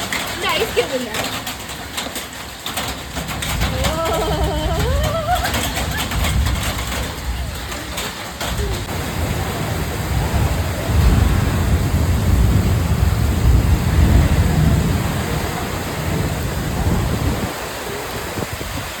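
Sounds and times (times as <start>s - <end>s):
heavy rain pouring: 0.0s - 19.0s
low rumble: 8.5s - 18.7s.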